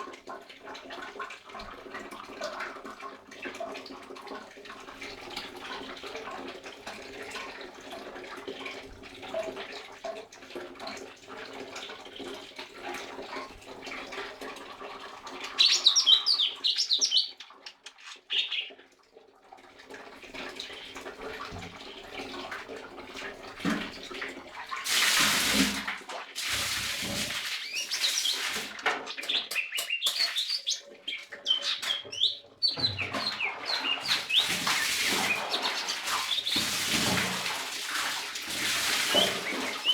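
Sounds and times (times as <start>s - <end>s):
bird chirping and twittering: 15.5s - 17.5s, 18.3s - 18.7s, 27.6s - 28.4s, 29.1s - 36.5s
rushing water-like noise: 20.3s - 29.0s, 32.8s - 39.9s.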